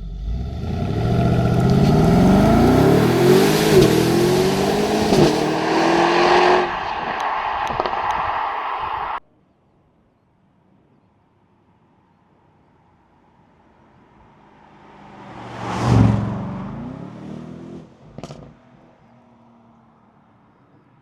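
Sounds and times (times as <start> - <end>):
car engine driving past: 0.0 - 9.2, 14.7 - 17.9.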